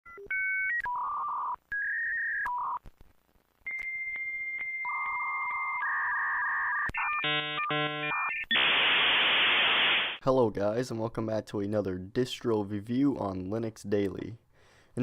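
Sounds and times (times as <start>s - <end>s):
dial-up modem handshake tones: 0.1s - 2.8s, 3.6s - 9.0s.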